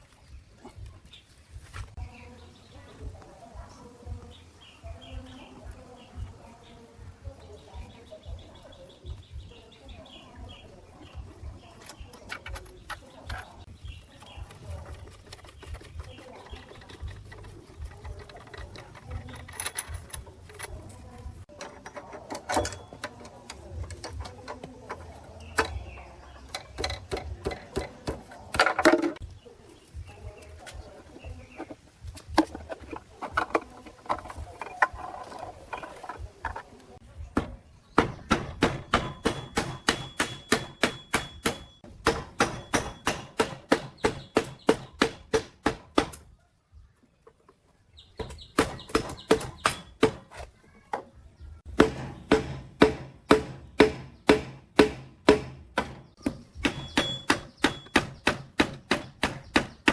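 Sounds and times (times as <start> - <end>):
clicks and knocks on metal parts: 14.4 - 29.2.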